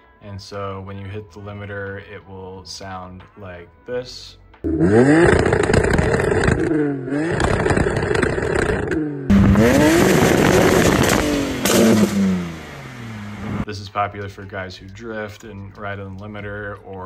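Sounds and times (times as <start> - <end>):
car engine bouncing off limiter: 4.7 - 13.6.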